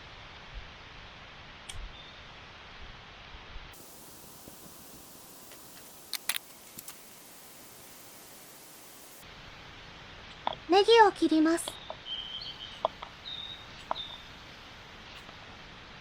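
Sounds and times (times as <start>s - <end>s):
water boiling in pot: 3.7s - 9.8s
camp stove hissing: 3.8s - 9.9s, 12.2s - 15.5s
sharp clicks and taps: 4.4s - 7.1s.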